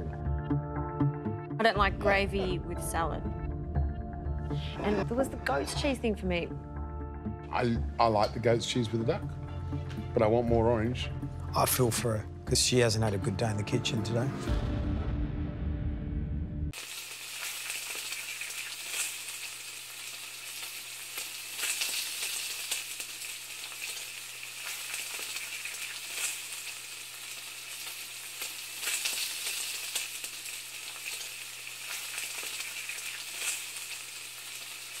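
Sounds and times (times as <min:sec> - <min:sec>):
food frying and crackling: 0:16.7 - 0:35.0.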